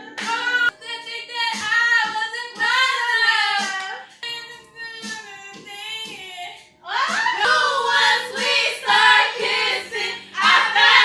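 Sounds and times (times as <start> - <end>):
karaoke backing track: 0.0 - 11.0
women singing karaoke: 0.0 - 11.0.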